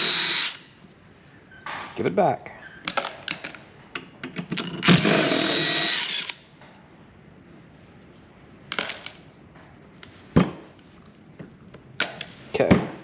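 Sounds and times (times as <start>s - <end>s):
power drill running: 0.0s - 0.6s, 4.8s - 6.4s.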